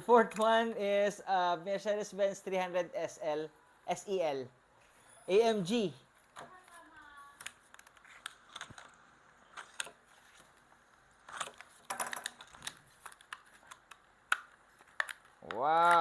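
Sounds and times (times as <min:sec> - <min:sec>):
plastic packaging clicks and crackles: 0:06.2 - 0:16.0.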